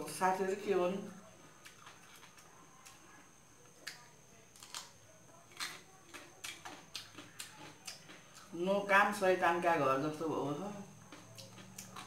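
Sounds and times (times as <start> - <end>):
person chewing: 1.4 - 8.6, 10.9 - 12.0.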